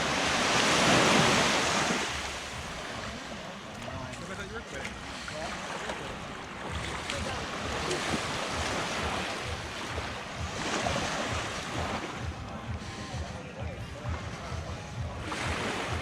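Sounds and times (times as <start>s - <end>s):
surf washing onto beach: 0.0s - 12.3s.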